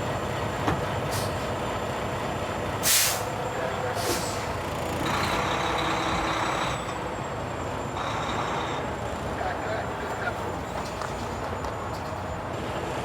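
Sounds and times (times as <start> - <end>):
heavy truck idling: 0.0 - 13.0
air brake hisses: 1.1 - 1.4, 2.8 - 3.3, 4.0 - 4.5.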